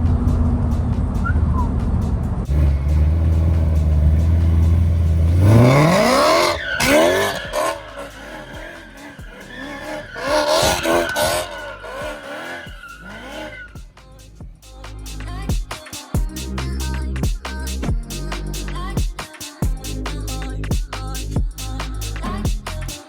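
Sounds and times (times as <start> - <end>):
car exhaust revving: 0.0 - 15.5.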